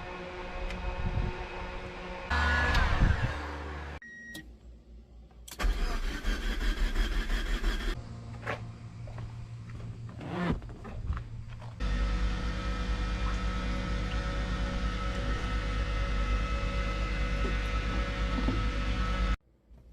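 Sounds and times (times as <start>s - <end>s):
starter cranking engine: 5.5s - 8.0s.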